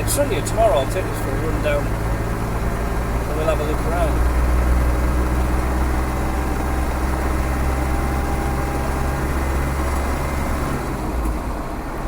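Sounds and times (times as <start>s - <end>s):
diesel engine running: 0.0s - 12.0s
road and tyre noise: 0.0s - 12.0s.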